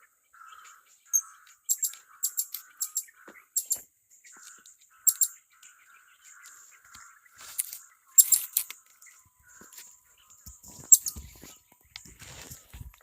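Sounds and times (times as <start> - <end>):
parrots calling shrilly: 0.4 - 3.8, 5.0 - 5.4.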